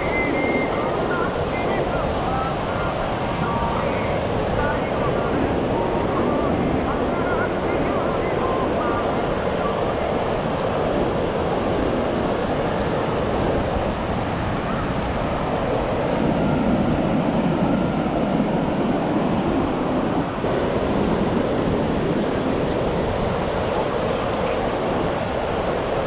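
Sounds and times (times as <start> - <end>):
ocean surf on beach: 0.0 - 26.0
wind buffeting microphone: 0.0 - 26.0.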